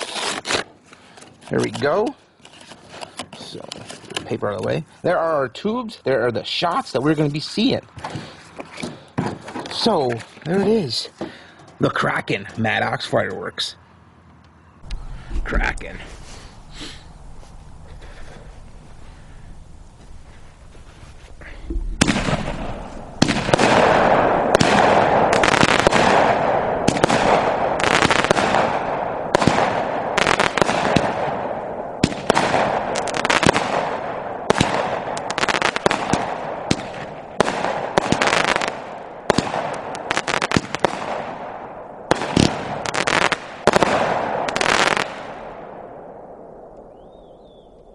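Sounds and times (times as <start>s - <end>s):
firework launch bangs: 21.8s - 45.8s
firework bursts overhead: 22.0s - 45.8s.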